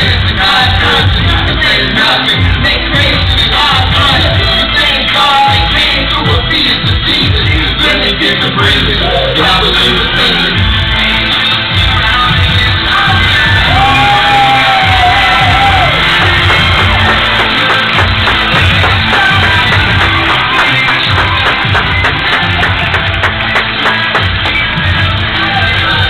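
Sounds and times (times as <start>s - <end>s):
hip-hop beat: 0.0s - 26.0s
people shouting: 13.3s - 23.0s.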